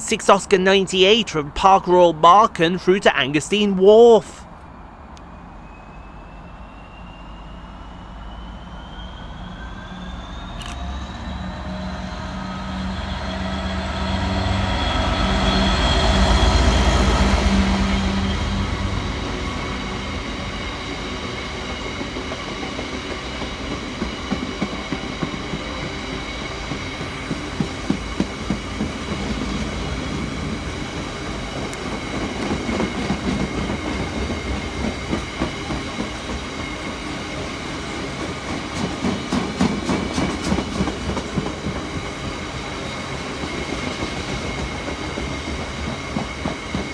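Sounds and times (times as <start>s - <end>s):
diesel locomotive engine: 4.5s - 46.9s.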